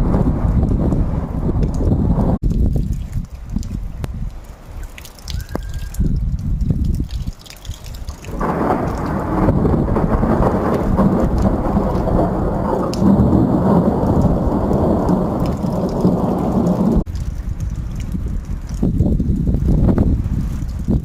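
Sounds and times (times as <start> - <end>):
thunder rolling rumble: 0.0 - 2.9, 8.2 - 21.0.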